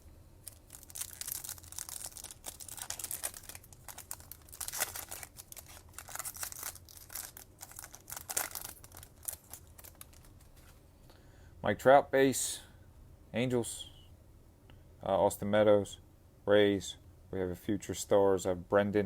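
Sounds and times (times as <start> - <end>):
foil wrappers tearing and crinkling: 0.4 - 10.6.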